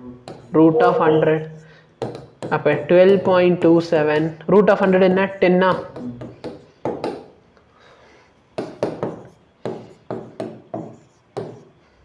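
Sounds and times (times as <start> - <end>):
pen tapping on writing surface: 2.0 - 4.3, 8.6 - 11.7.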